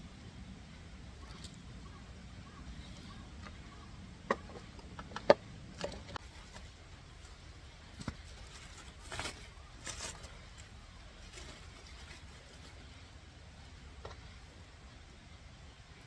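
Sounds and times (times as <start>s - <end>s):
small clicks and knocks: 4.2s - 6.2s.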